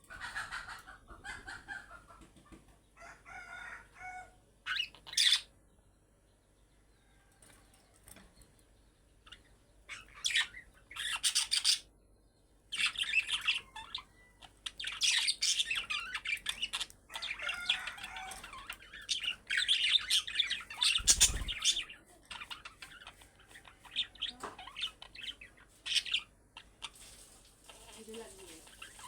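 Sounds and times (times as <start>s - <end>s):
budgerigars chattering and chirping: 4.7s - 5.5s, 9.2s - 11.9s, 12.6s - 27.1s, 27.7s - 29.0s.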